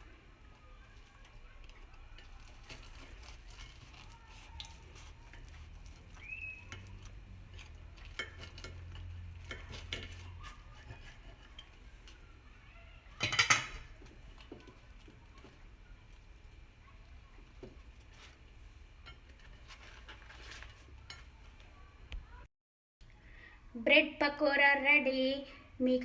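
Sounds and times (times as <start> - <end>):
knife scraping a plate: 1.8 - 12.2, 17.5 - 21.5
cutlery clattering on a dish: 6.6 - 12.2, 13.2 - 15.6.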